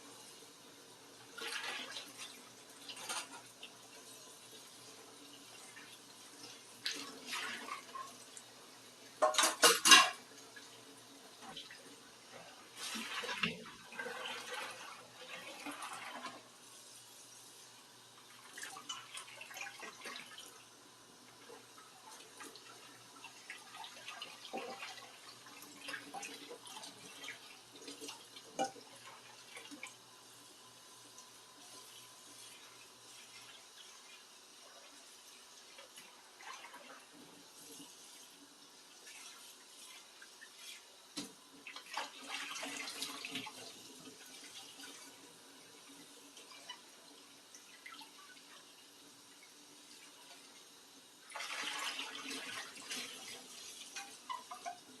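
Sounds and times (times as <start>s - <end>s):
plates and cutlery clinking: 9.2s - 10.3s.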